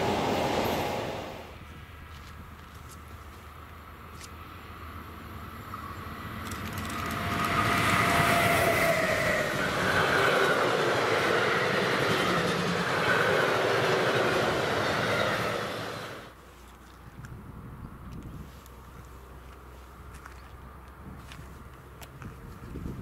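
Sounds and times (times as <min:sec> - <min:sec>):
freight train wheels on rails: 0:00.0 - 0:03.4, 0:05.4 - 0:16.4.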